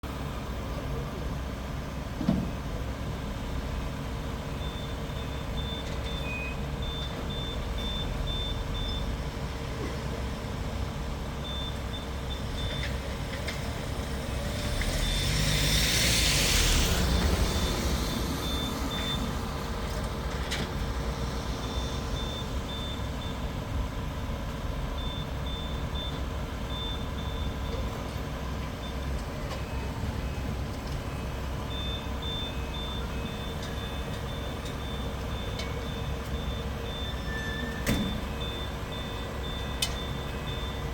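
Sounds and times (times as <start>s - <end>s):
engine rumble: 0.0s - 40.9s
reversing alarm beeps: 4.5s - 9.2s, 11.4s - 13.0s, 16.8s - 19.5s, 21.6s - 23.5s, 25.0s - 28.0s, 31.1s - 40.9s
rushing noise: 13.8s - 19.8s.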